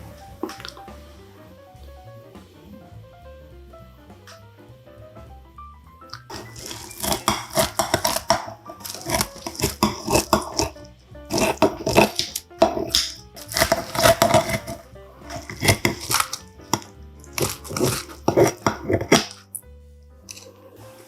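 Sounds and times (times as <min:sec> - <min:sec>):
soft background music: 0:00.0 - 0:21.0
crunching and chewing: 0:06.2 - 0:19.6, 0:20.3 - 0:20.7.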